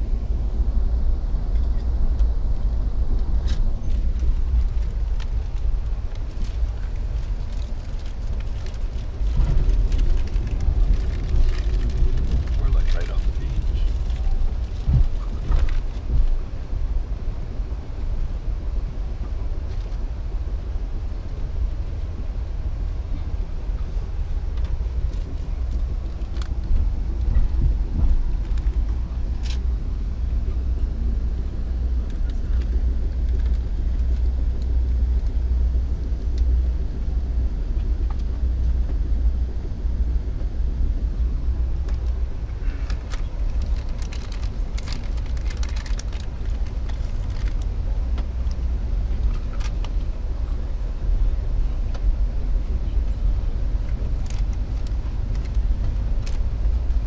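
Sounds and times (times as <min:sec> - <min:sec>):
train rumbling: 0:00.0 - 0:57.0
light clicks and rattles: 0:41.8 - 0:50.1.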